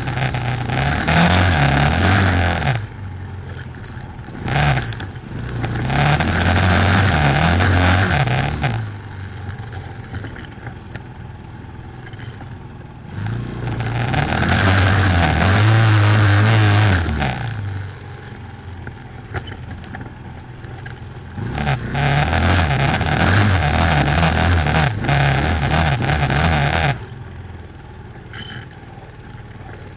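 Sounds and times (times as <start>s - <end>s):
quad bike engine revving: 0.0s - 29.9s.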